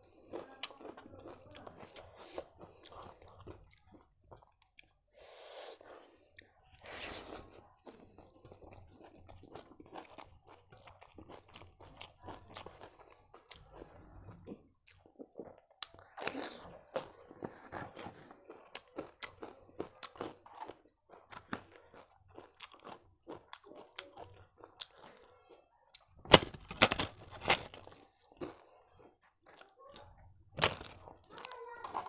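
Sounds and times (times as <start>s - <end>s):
chewing clicks and crunches: 0.0s - 5.0s, 7.5s - 32.0s
crisp wafer crunching: 26.0s - 28.8s, 29.4s - 32.0s.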